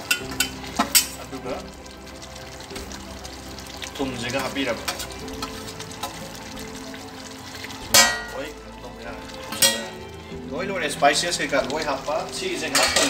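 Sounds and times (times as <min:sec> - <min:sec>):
background music: 0:00.0 - 0:13.0
gravy sizzling in a pot: 0:00.0 - 0:13.0
steel plate knocking on pot rim: 0:08.0 - 0:08.3.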